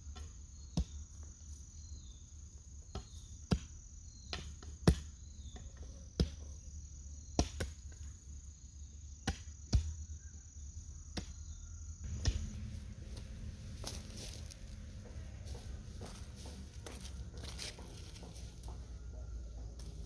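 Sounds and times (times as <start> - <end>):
sharp chopping strikes: 12.1 - 14.7.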